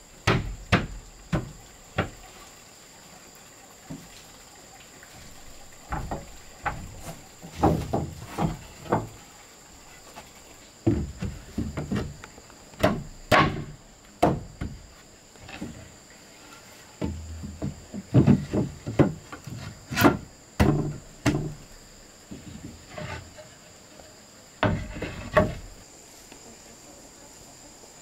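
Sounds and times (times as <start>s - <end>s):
high insect drone: 0.0s - 28.0s
wood knocking: 0.2s - 2.2s, 5.9s - 9.2s, 10.8s - 14.8s, 17.0s - 21.7s, 24.6s - 25.8s.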